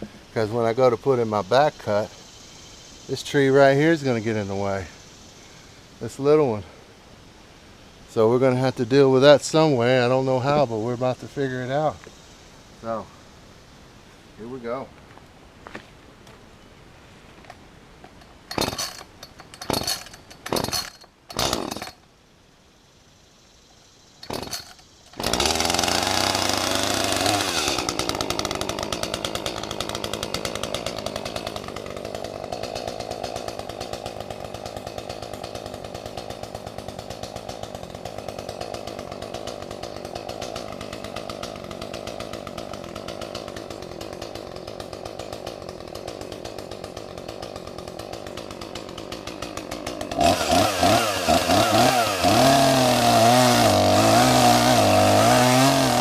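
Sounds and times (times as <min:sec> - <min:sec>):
chainsaw running: 0:18.0 - 0:22.0, 0:24.2 - 0:56.0.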